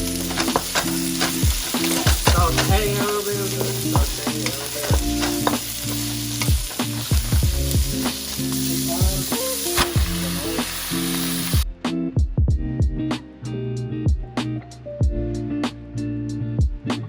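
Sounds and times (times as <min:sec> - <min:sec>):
food sizzling in a hot pan: 0:00.0 - 0:11.6.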